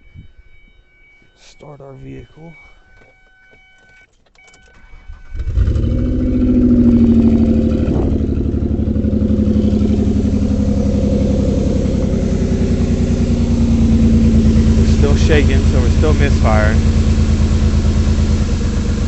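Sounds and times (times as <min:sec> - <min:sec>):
car engine cranking and starting: 0:02.8 - 0:19.0
misfiring engine idling: 0:04.8 - 0:19.0.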